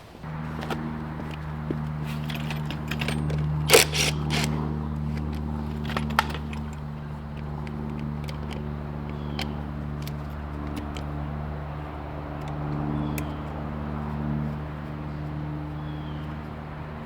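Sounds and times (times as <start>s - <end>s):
metal tools clinking: 0.0s - 11.2s
steady low hum: 0.0s - 17.0s.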